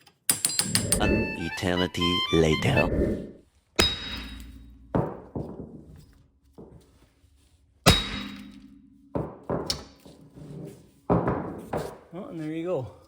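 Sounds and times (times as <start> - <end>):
hammer striking metal tool: 3.8 - 5.5, 7.9 - 10.1.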